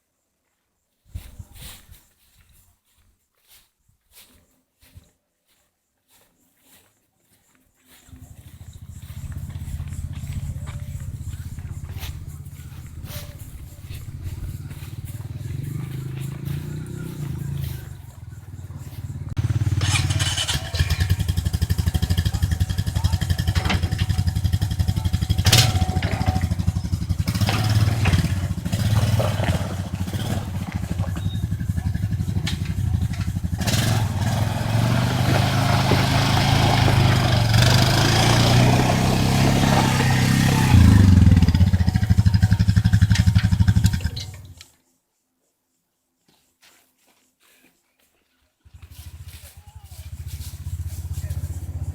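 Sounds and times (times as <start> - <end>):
quad bike engine running: 8.1 - 44.6, 48.6 - 51.9
knocks and rattles: 9.0 - 44.6.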